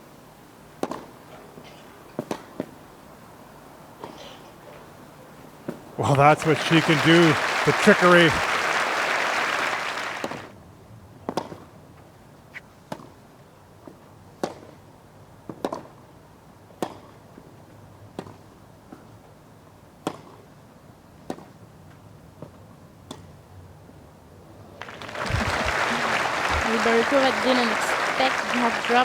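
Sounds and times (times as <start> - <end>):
hushed crowd: 6.0 - 10.5, 24.8 - 29.0
racquets hitting tennis ball: 24.8 - 29.0.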